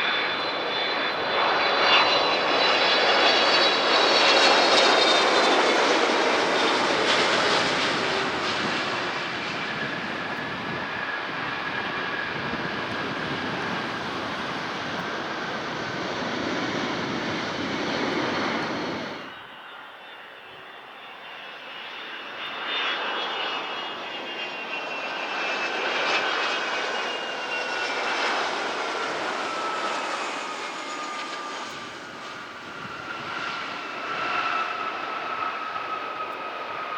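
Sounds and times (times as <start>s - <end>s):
high turbine whine: 0.0s - 22.6s
jet engines roaring: 0.0s - 36.9s.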